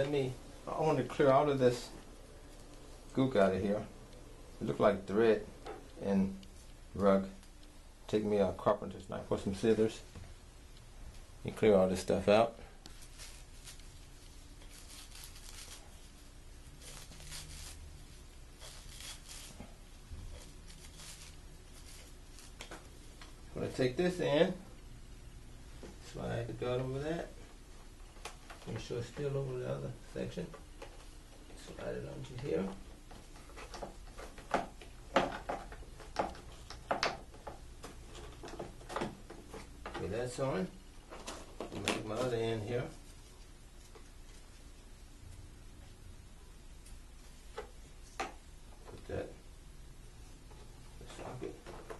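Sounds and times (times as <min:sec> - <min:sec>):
faint scraping and rustling: 0:11.1 - 0:24.6, 0:25.7 - 0:36.8, 0:37.4 - 0:46.0.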